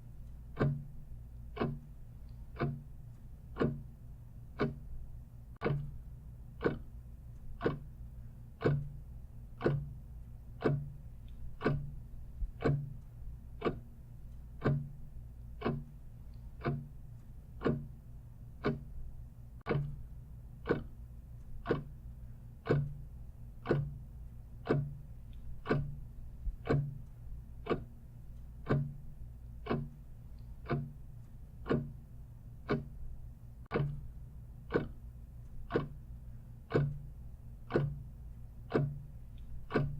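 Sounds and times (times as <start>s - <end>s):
clock ticking: 0.0s - 39.9s
faint low hum: 0.0s - 39.9s.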